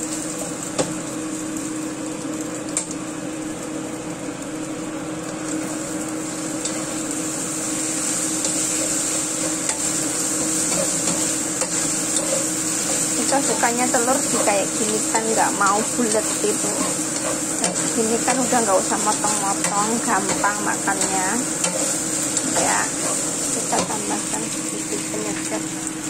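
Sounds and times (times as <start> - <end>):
egg and shrimp sizzling in wok: 0.0 - 26.0
steady low hum: 3.2 - 26.0
spatula scraping and clicking on pan: 8.4 - 13.3, 16.0 - 18.4.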